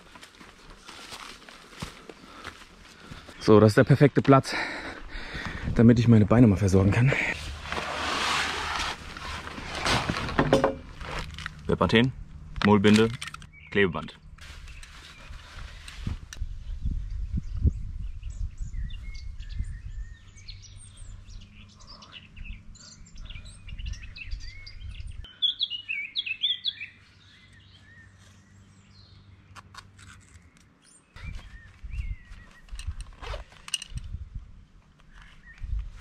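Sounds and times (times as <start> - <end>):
rustles: 0.0 - 3.5, 7.0 - 16.5, 29.5 - 36.0
songbirds chirping and warbling: 0.0 - 7.8, 8.6 - 36.0
sharp clicks: 12.6 - 13.5.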